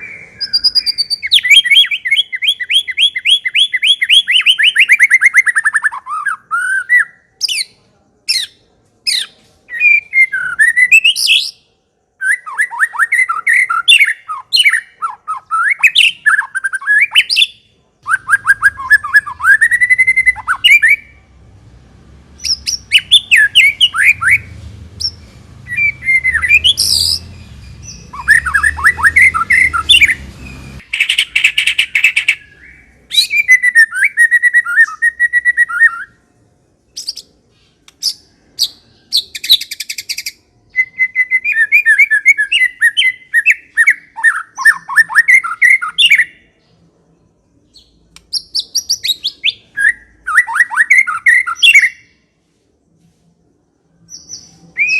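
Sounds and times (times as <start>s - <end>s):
bird singing whistled trills: 0.0s - 7.7s, 8.3s - 11.6s, 12.2s - 21.2s, 22.4s - 36.2s, 38.0s - 46.6s, 47.6s - 52.3s, 53.9s - 54.9s
faint low hum: 17.7s - 30.9s
sharp clicking bird notes: 37.8s - 38.2s, 48.1s - 48.4s.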